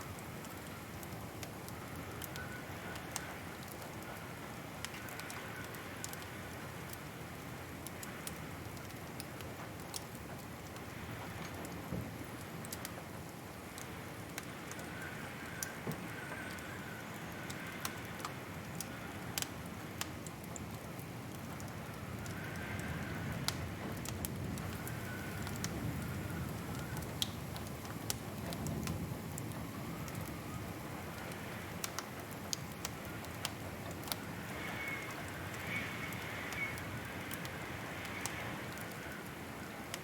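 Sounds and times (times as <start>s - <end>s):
wood fire crackling: 0.0s - 40.0s
faint wavering whistle: 34.5s - 36.9s.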